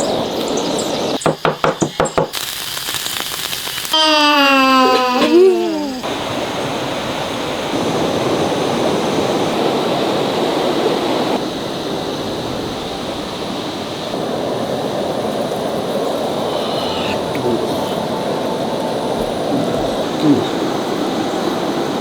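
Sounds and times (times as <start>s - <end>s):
rushing water: 5.0s - 22.0s.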